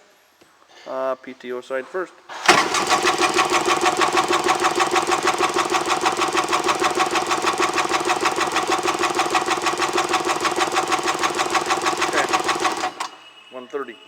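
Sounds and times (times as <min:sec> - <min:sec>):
starter cranking engine: 0:02.3 - 0:13.3.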